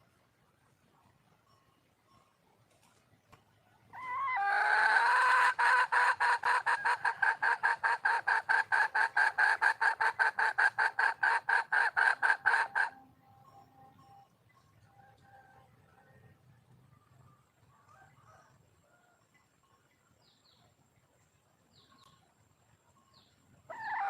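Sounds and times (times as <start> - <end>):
hen calling in rapid pulses: 3.9 - 13.0, 23.7 - 24.0.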